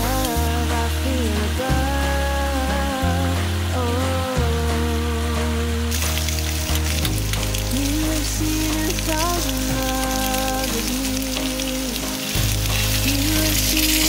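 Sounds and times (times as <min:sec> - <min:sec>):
slow background music: 0:00.0 - 0:14.0
meat sizzling in a grill pan: 0:11.3 - 0:14.0.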